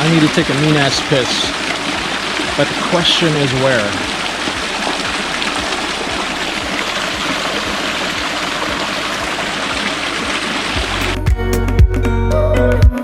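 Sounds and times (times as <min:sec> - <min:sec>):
stream rushing: 0:00.0 - 0:11.3
music with heavy bass: 0:04.3 - 0:13.0.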